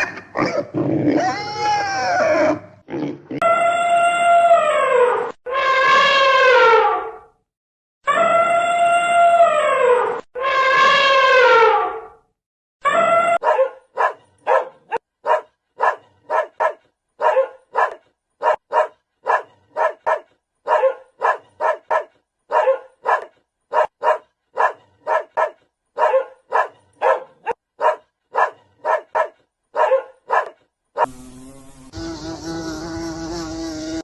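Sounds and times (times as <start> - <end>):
dog barking: 13.4 - 31.1.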